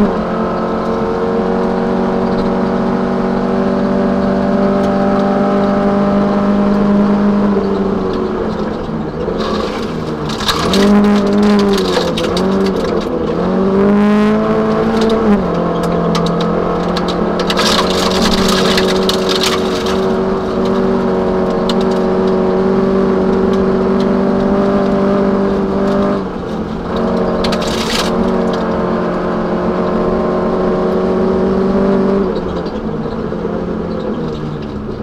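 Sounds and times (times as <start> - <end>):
car engine revving: 0.0 - 35.0
gravel crackling under car: 6.5 - 35.0.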